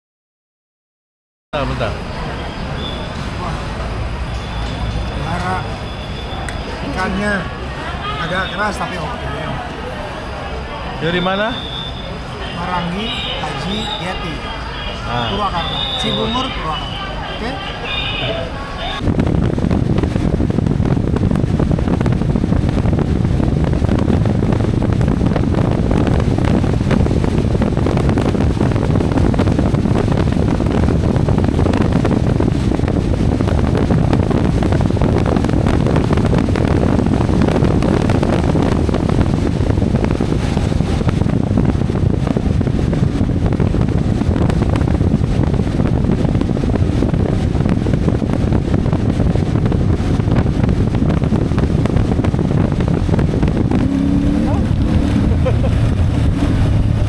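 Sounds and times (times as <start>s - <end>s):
wind buffeting microphone: 18.2s - 57.0s
motorcycle engine running: 19.0s - 57.0s.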